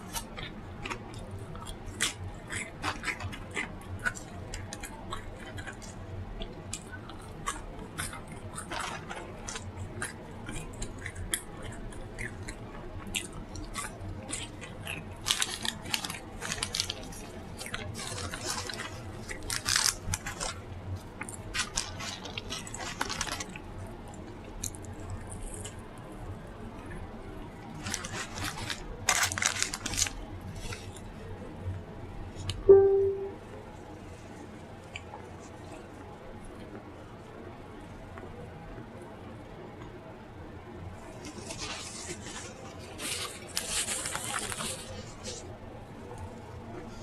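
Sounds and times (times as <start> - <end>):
chewing: 0.0 - 31.2
crunching while eating: 0.0 - 31.7, 41.0 - 47.0.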